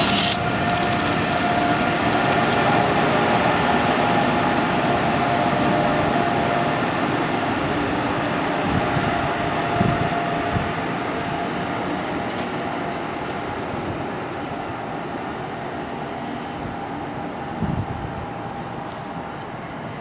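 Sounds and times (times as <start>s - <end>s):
train running noise: 0.0s - 20.0s.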